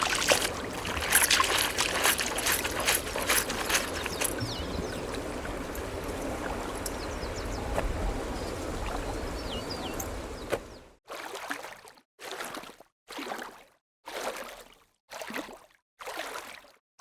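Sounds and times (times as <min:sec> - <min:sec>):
short bursts of water: 0:00.0 - 0:07.5
water rushing: 0:00.0 - 0:10.9.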